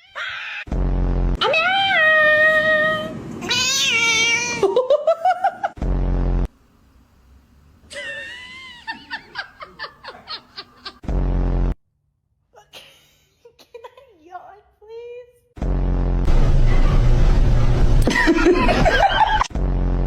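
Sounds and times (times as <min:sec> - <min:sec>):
cat meowing and caterwauling: 0:01.4 - 0:04.7
short loud low buzz: 0:15.6 - 0:18.7.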